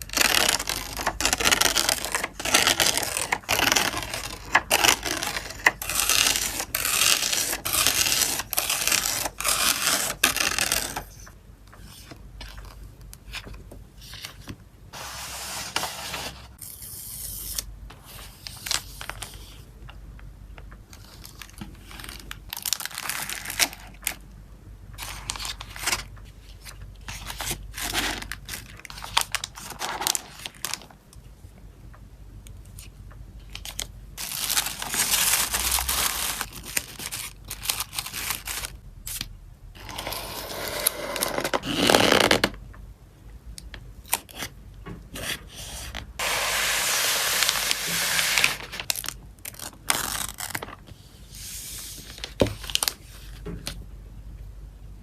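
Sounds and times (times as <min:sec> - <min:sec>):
plastic packaging crinkling: 0:33.6 - 0:38.8, 0:46.2 - 0:50.9.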